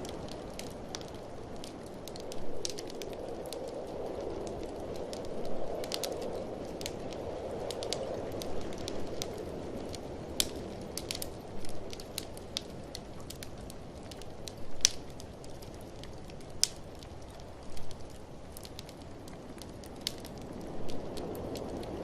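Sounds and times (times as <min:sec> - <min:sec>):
blizzard wind rushing: 0:00.0 - 0:22.0
wood fire crackling and popping: 0:00.0 - 0:22.0.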